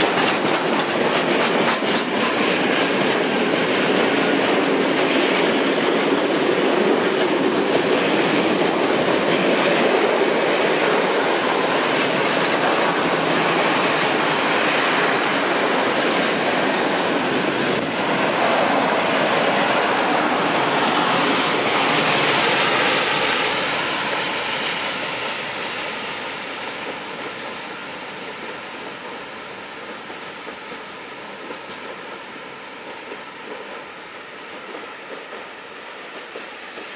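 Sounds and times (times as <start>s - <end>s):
freight train wagons rolling: 0.0s - 24.8s.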